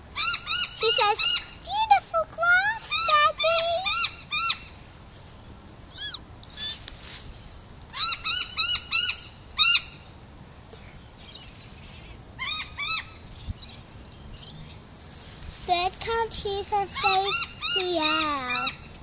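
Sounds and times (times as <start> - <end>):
birds giving harsh alarm calls: 0.0 - 1.9, 2.6 - 4.9, 5.9 - 6.9, 7.9 - 10.2, 11.0 - 14.8, 15.7 - 19.0.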